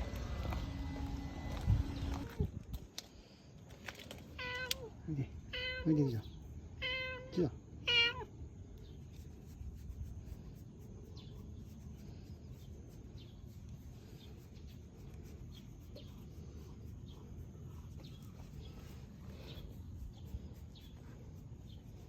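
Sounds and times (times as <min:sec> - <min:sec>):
low rumble: 0:00.0 - 0:02.8.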